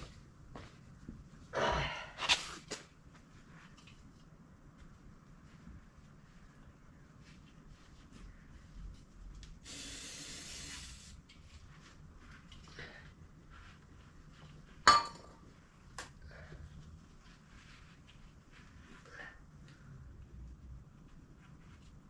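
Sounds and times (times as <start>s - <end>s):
aerosol spray burst: 9.6s - 11.2s.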